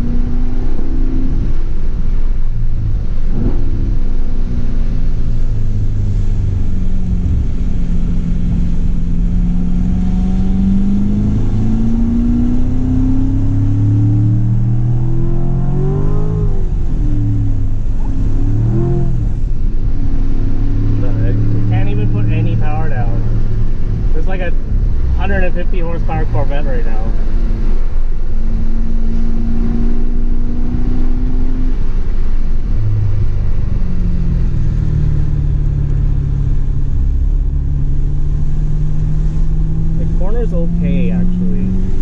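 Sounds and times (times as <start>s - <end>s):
car engine revving: 0.0s - 42.0s.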